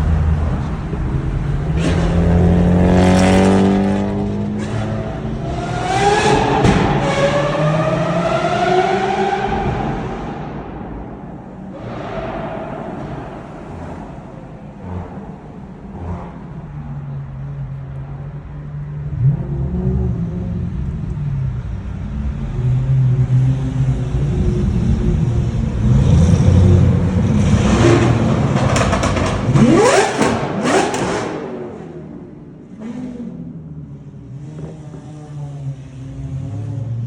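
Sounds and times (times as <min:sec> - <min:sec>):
engine crackles: 0:00.0 - 0:07.1, 0:24.7 - 0:33.3
sports car engine revving: 0:00.0 - 0:17.5, 0:19.0 - 0:37.0.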